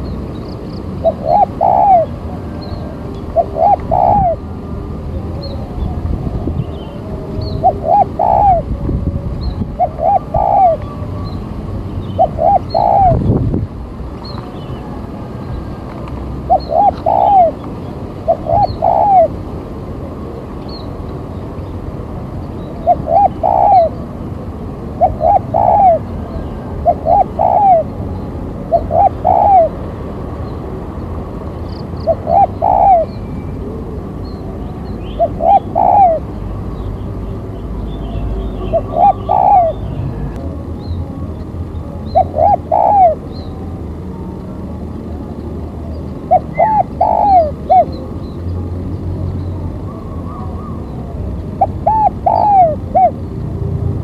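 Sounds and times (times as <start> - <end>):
dove cooing: 0.9 - 11.4, 12.1 - 13.3, 14.4 - 19.5, 22.6 - 24.2, 24.9 - 29.8, 32.0 - 36.6, 38.2 - 41.2, 41.8 - 43.5, 45.9 - 48.2, 49.8 - 53.3.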